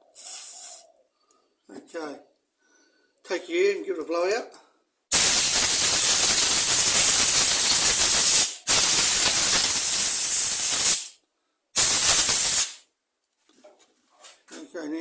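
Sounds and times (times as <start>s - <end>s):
compressed air hissing: 0.0s - 0.8s, 5.1s - 11.2s, 11.8s - 12.8s.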